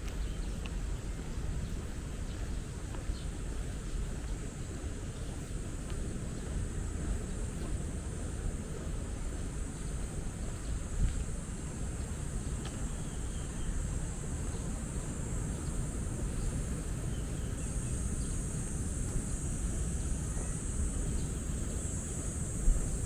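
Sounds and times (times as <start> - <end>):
wind rumbling on microphone: 0.0 - 23.0
distant city traffic: 5.6 - 23.0.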